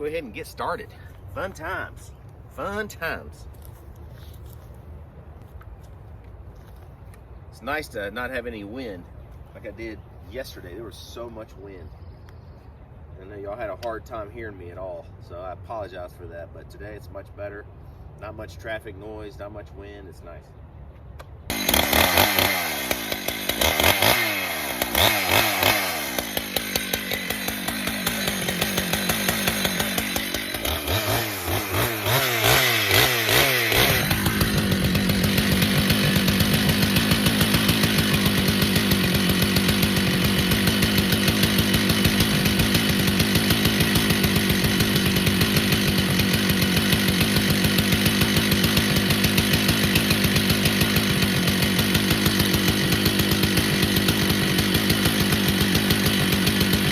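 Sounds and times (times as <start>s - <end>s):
chainsaw revving: 21.5s - 56.9s.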